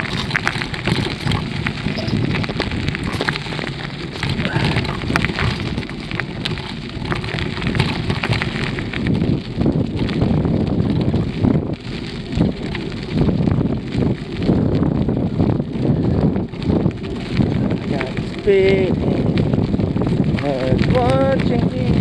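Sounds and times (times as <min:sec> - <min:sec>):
bicycle crackles and rattles: 0:00.0 - 0:22.0
wind buffeting microphone: 0:00.0 - 0:22.0.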